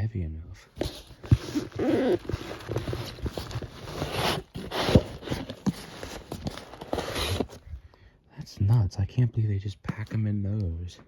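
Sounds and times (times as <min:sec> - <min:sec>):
cardboard rustling and scraping: 0:00.8 - 0:07.7.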